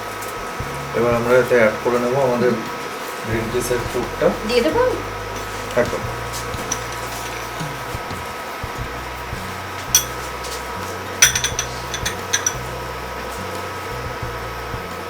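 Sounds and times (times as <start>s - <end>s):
metal spoon clinking against bowl: 6.6s - 7.6s, 10.0s - 10.2s, 11.2s - 12.6s.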